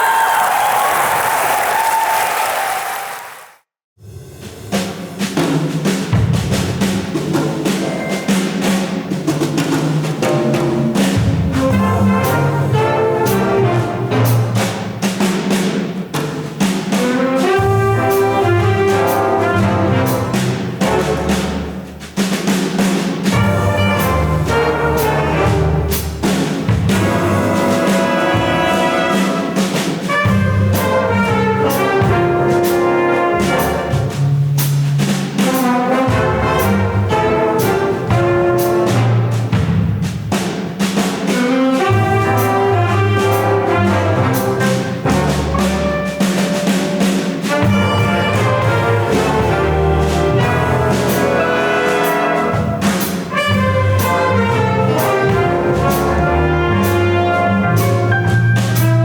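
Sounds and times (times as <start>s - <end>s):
percussion hits: 4.0s - 59.0s
brass ensemble chords: 9.6s - 15.6s, 16.9s - 22.4s, 23.2s - 40.4s, 41.2s - 59.0s
percussion strokes: 32.6s - 56.2s.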